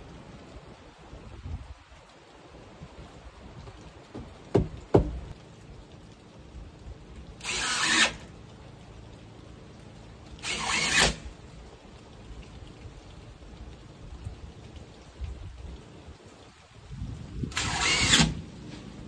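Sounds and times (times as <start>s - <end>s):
sharp knocks: 4.1s - 5.3s
power drill bursts: 7.4s - 8.2s, 10.4s - 11.2s, 17.5s - 18.4s.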